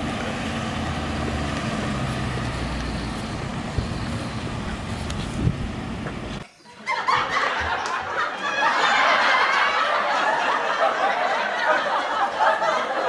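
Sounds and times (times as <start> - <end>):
people laughing together: 6.5 - 13.0.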